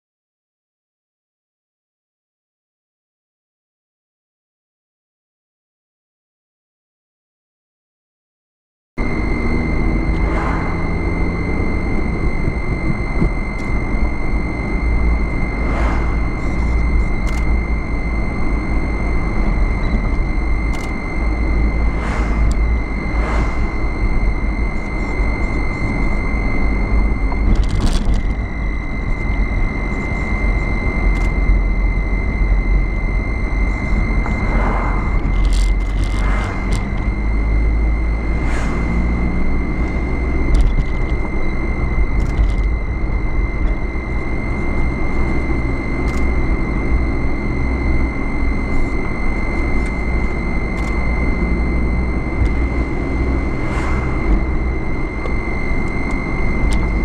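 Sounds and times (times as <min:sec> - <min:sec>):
high-pitched whine: 0:09.0 - 0:57.0
vehicle engine and road noise: 0:09.0 - 0:57.0.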